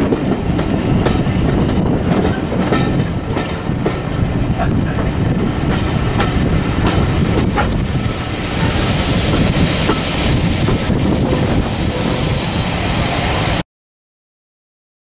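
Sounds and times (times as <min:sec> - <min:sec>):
wheels clicking over rail joints: 0:00.0 - 0:12.2
train rumble: 0:00.0 - 0:13.6
high flange squeal: 0:08.6 - 0:09.8.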